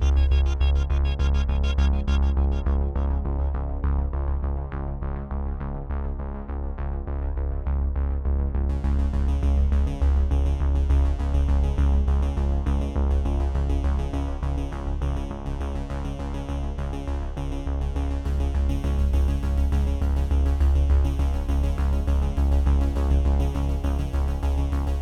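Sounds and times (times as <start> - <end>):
synthesizer chords: 0.0 - 3.7
deep pulsing bass: 0.0 - 25.0.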